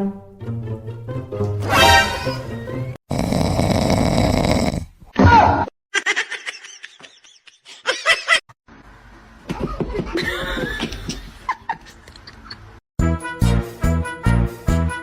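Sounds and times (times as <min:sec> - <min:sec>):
people laughing: 0:09.5 - 0:12.7.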